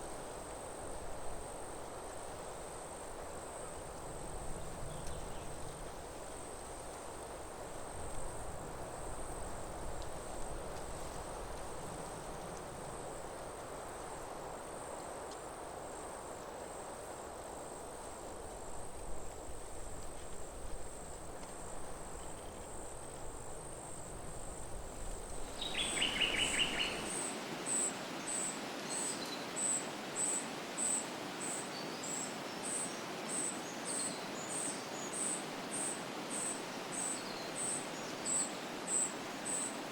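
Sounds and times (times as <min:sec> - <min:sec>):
bird call: 0:25.6 - 0:27.3.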